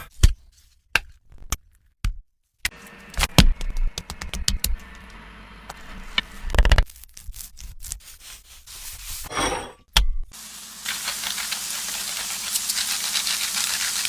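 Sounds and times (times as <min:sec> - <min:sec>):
chicken frying in hot oil: 0:10.3 - 0:14.0.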